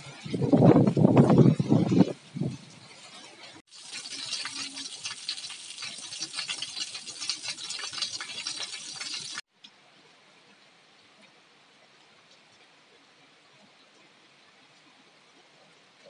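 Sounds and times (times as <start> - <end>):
rainwater pouring off roof: 0.0 - 9.5
steady rain hiss: 2.2 - 16.0.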